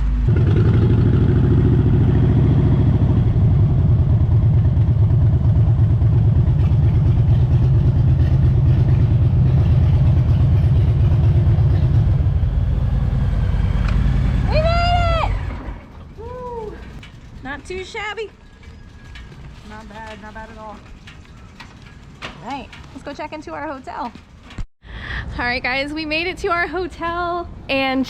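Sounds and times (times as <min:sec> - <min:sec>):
motorcycle engine running: 0:00.0 - 0:20.8.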